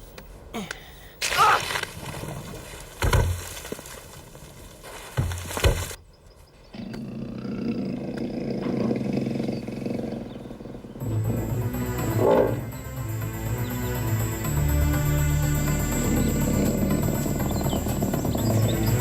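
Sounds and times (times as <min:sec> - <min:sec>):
loud animal roars: 0:06.8 - 0:11.6
background music: 0:11.0 - 0:19.0.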